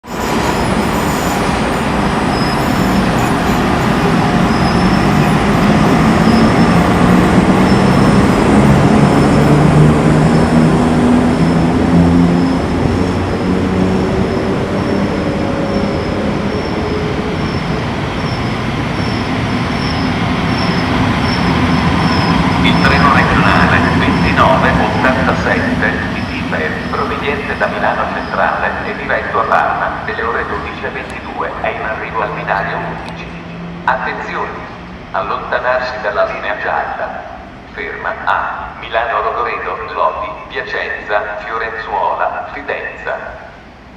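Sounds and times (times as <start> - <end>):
train wheels on rails: 0.0 - 35.2.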